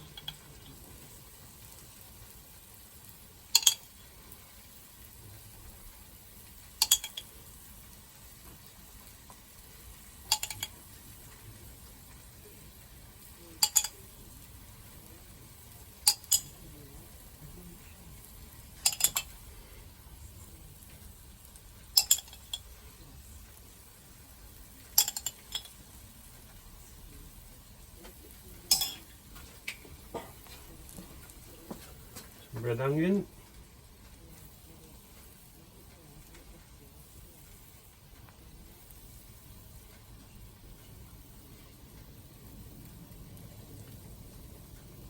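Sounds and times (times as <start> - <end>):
metal utensil clinking on dish: 0.0 - 0.8, 3.5 - 4.0, 6.8 - 7.4, 10.2 - 10.9, 13.5 - 14.1, 16.0 - 16.6, 18.8 - 19.4, 22.0 - 22.7, 24.9 - 25.8, 28.7 - 29.2
faint steady hiss: 0.0 - 45.0.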